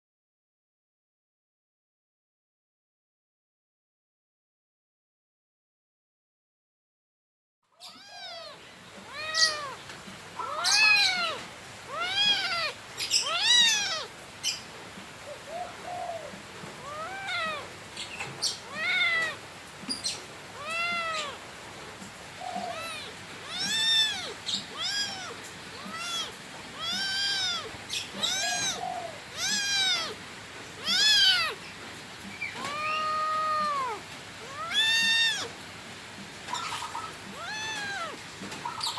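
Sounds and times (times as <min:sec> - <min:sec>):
cat meowing: 0:07.8 - 0:14.2, 0:15.3 - 0:17.8, 0:18.4 - 0:19.4, 0:20.6 - 0:21.5, 0:22.4 - 0:30.2, 0:30.8 - 0:31.6, 0:32.3 - 0:35.6, 0:36.5 - 0:38.9.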